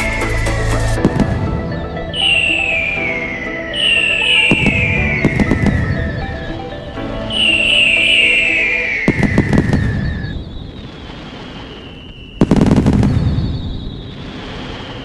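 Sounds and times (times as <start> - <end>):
fireworks crackling bangs: 4.5 - 15.0.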